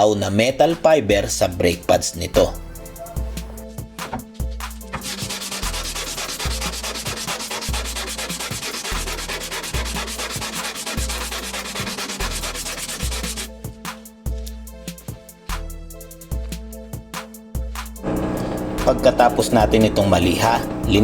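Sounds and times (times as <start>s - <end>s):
background music: 0.0s - 21.0s
brake pad rasping on sandpaper: 3.0s - 13.6s.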